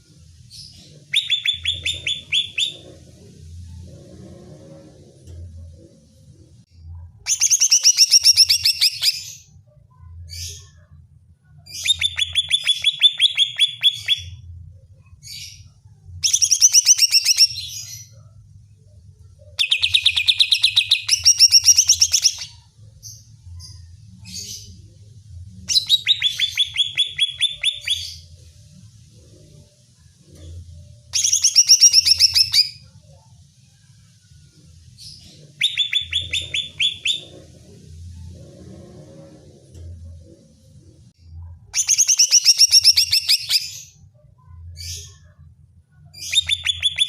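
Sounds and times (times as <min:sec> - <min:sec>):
bird chattering song: 0:01.0 - 0:03.0, 0:16.3 - 0:17.8, 0:19.6 - 0:22.6, 0:25.7 - 0:28.3, 0:31.2 - 0:32.8, 0:35.2 - 0:37.4, 0:41.8 - 0:44.0, 0:46.2 - 0:47.0.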